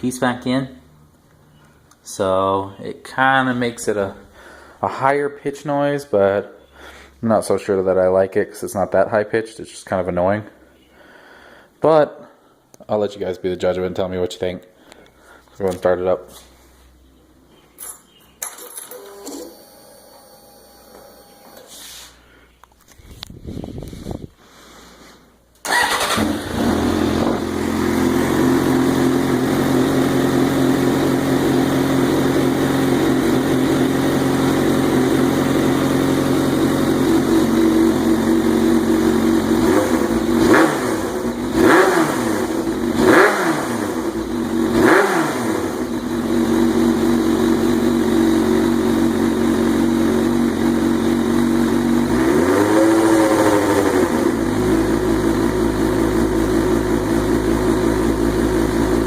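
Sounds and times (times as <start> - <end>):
motorcycle engine idling: 53.6 - 59.0.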